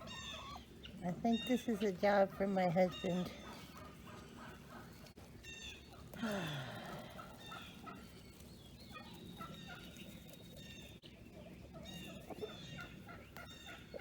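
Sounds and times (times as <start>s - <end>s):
turkey gobbling: 0.0s - 6.2s, 6.8s - 14.0s
poultry calling faintly: 0.0s - 14.0s.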